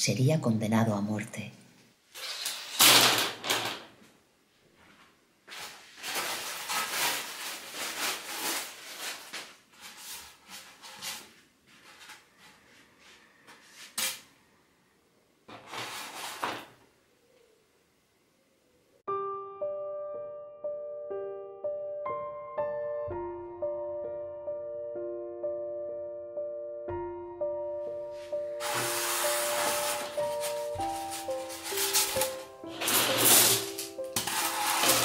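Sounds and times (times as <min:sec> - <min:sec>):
wooden skewers clattering on table: 0:02.4 - 0:03.9, 0:29.7 - 0:35.0
foam disc scraping on table: 0:09.8 - 0:14.2, 0:15.5 - 0:16.7, 0:28.6 - 0:35.0.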